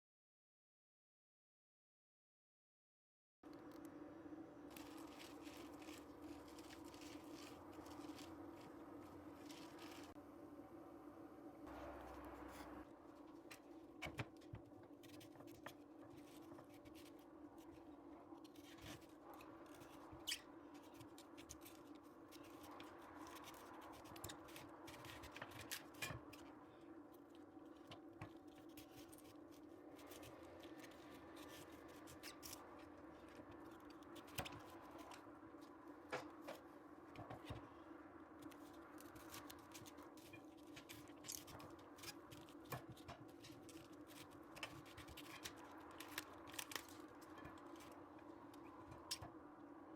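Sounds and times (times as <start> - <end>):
steady low hum: 3.5 - 49.9
knife cutting cabbage crunches: 4.7 - 10.1, 38.4 - 48.0.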